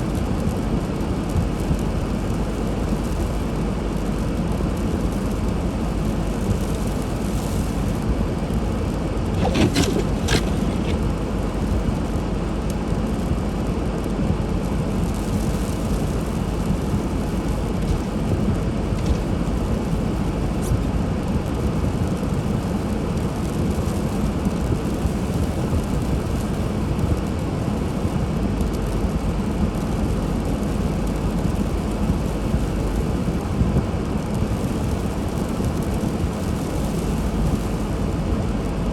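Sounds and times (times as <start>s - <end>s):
car engine and tyre noise: 0.0s - 38.9s
short high squeaks: 9.4s - 11.0s.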